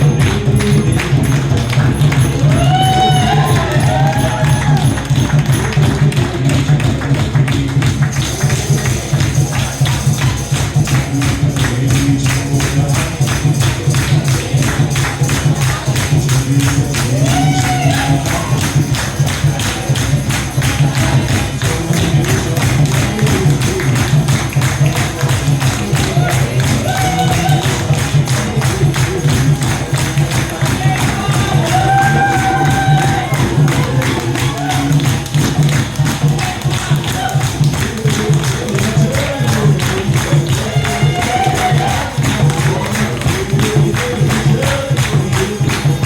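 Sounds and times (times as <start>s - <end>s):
faint singing: 0.0s - 46.0s
jingling hand percussion: 0.0s - 46.0s.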